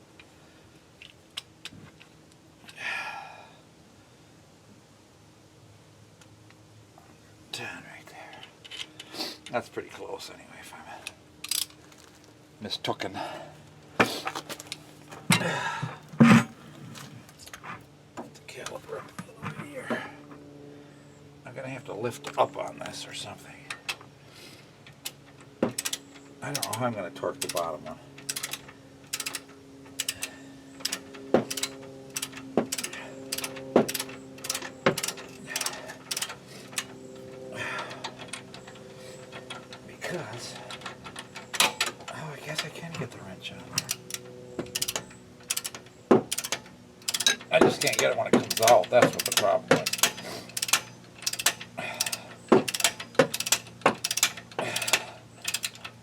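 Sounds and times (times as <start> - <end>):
steady low hum: 0.0 - 56.0
ratchet wrench clicking: 11.4 - 11.7, 25.0 - 26.8, 27.4 - 36.9, 43.8 - 56.0.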